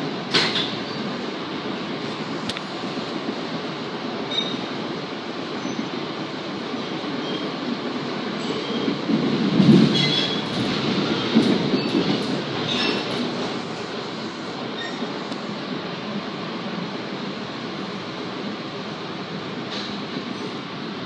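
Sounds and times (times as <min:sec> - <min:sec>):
train wheels rumbling: 0:00.0 - 0:21.0
brief high squeaks: 0:14.8 - 0:15.0.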